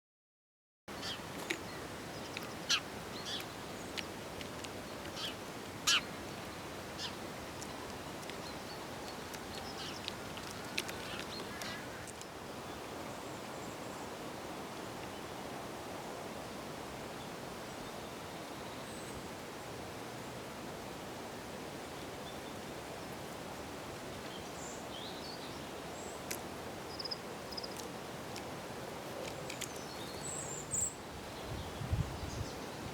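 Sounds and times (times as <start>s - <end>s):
birds calling: 0.9s - 12.3s.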